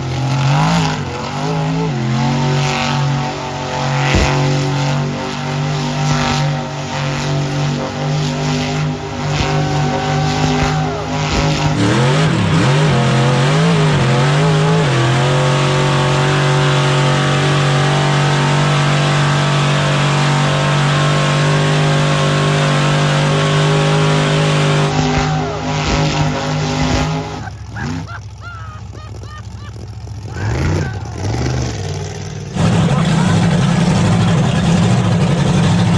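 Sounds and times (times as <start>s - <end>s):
truck engine running at high revs: 0.0s - 35.9s.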